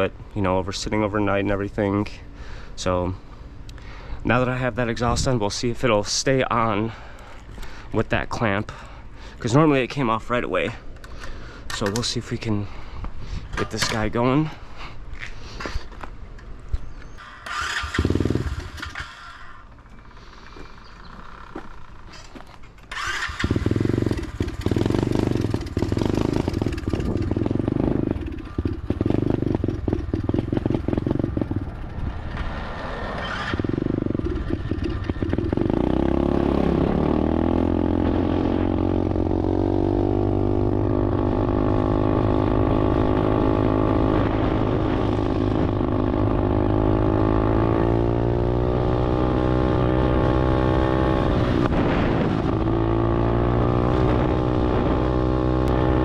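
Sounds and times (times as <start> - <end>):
dirt bike engine running roughly: 23.4 - 32.1, 33.6 - 37.2.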